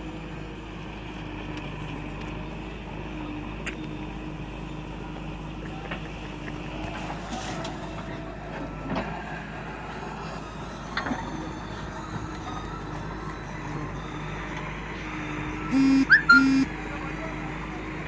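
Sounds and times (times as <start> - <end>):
diesel engine running: 0.0 - 18.0
loud steady horn tone: 15.7 - 17.1.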